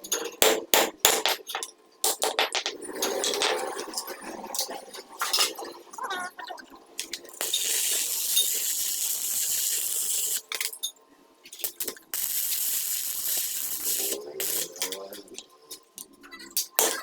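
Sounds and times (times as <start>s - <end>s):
high-pitched hissing spray: 12.2s - 14.8s.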